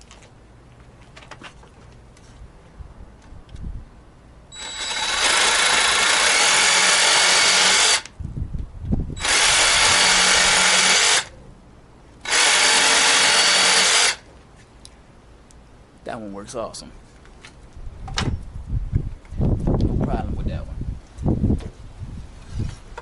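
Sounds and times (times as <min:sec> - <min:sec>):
jig saw cutting wood: 0:04.6 - 0:08.1, 0:09.2 - 0:11.3, 0:12.2 - 0:14.2.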